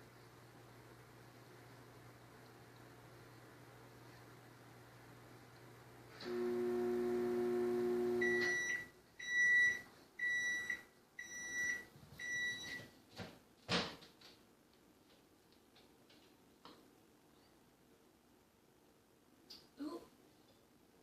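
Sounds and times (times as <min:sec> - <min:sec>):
microwave oven humming: 0:00.0 - 0:12.8
microwave beeps: 0:06.2 - 0:12.9.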